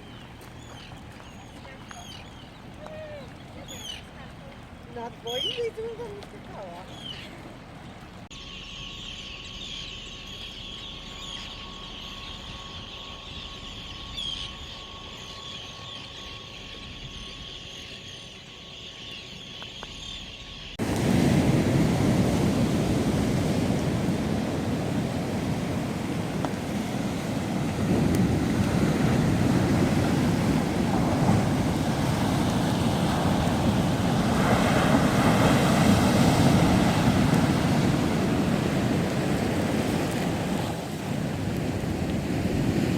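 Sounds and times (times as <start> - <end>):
ocean surf washing on beach: 20.8 - 42.9
wind on microphone: 20.8 - 42.9.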